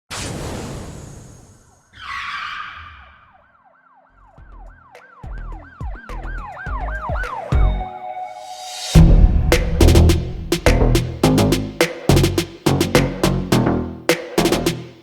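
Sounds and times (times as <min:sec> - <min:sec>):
whoosh: 0:08.4 - 0:11.3
deep bass thumps: 0:09.0 - 0:13.8.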